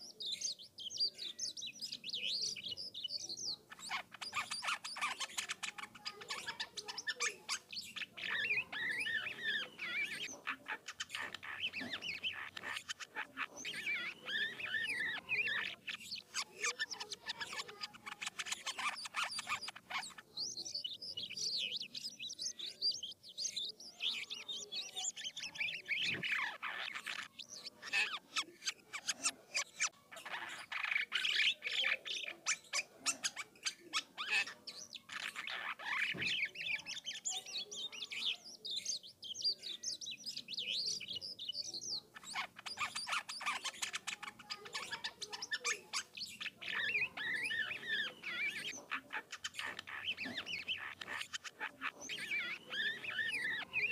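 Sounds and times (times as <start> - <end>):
starling singing: 0.0 - 53.9.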